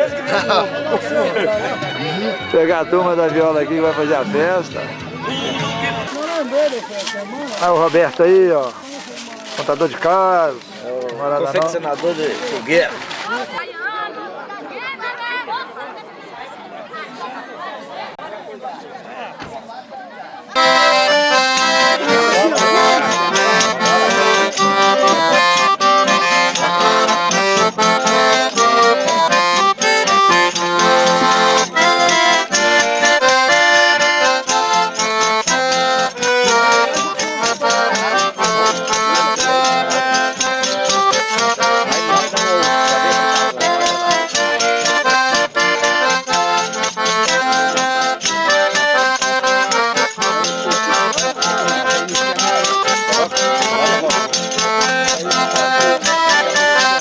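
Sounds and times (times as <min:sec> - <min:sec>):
button accordion dance tune: 0:00.0 - 0:06.6, 0:20.6 - 0:57.0
percussion beat: 0:20.6 - 0:57.0.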